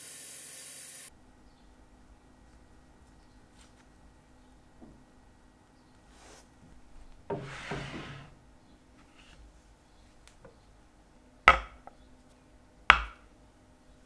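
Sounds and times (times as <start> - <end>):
rustling scrape on workbench: 7.3 - 8.4
sharp knocks on workbench: 11.5 - 11.9, 12.9 - 13.2.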